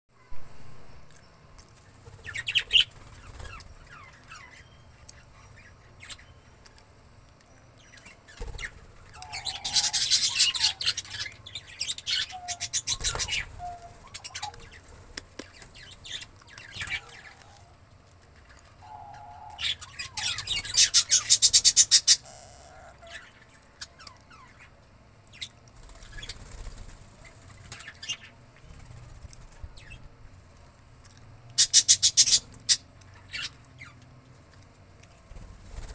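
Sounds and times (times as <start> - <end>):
parakeet shrill chatter: 8.6 - 14.8, 18.8 - 24.7, 31.6 - 33.9.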